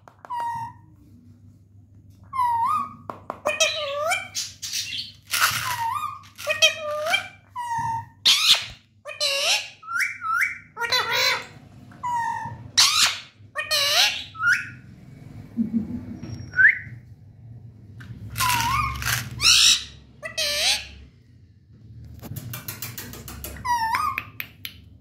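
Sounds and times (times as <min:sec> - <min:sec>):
parrot calling: 0:02.3 - 0:14.8, 0:18.4 - 0:21.1.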